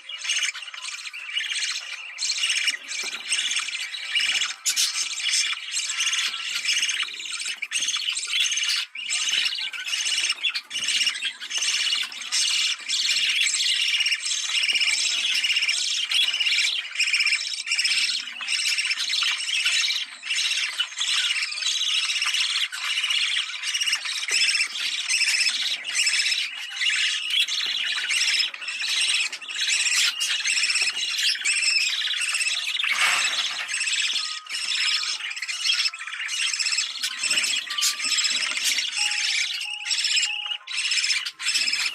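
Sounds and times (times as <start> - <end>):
budgerigars chattering and squawking: 0.0 - 41.9.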